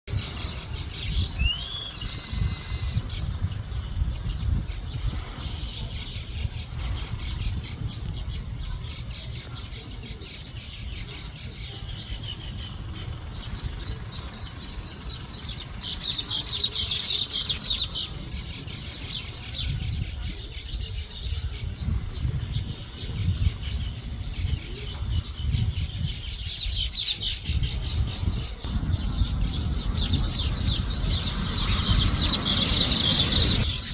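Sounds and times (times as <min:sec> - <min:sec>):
bird chirping: 0:00.1 - 0:33.9
low rumble: 0:27.4 - 0:33.9.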